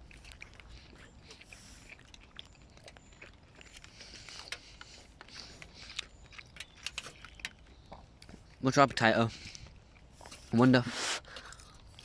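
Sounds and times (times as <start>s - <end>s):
person chewing: 0.0s - 12.0s
small clicks and scrapes: 0.0s - 12.0s
soft breathy hisses: 10.2s - 11.5s.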